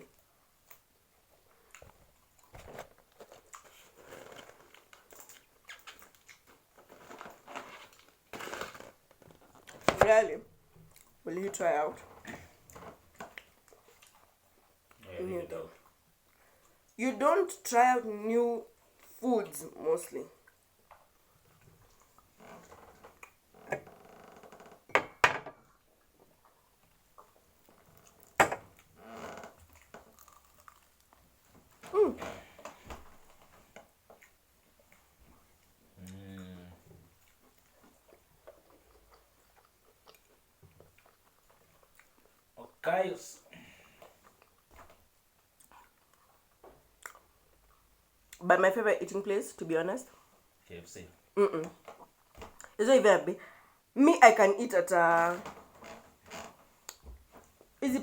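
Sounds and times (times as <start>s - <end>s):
person chewing crunchy food: 1.6s - 9.8s, 29.6s - 31.4s, 37.2s - 42.6s, 45.4s - 47.9s.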